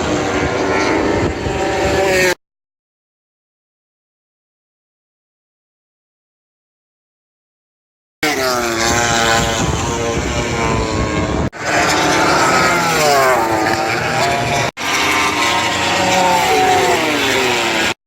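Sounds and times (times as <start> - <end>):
racing motorcycles passing: 0.0 - 2.4, 8.3 - 18.0.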